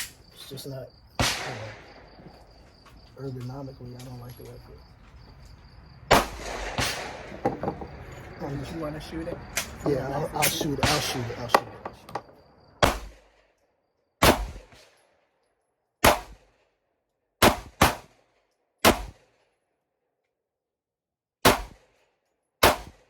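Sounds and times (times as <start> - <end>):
pistol shots: 1.2 - 2.5, 6.1 - 7.9, 10.4 - 11.8, 12.8 - 13.5, 14.2 - 14.9, 16.0 - 16.6, 17.4 - 18.2, 18.8 - 19.4, 21.4 - 22.0, 22.6 - 23.0.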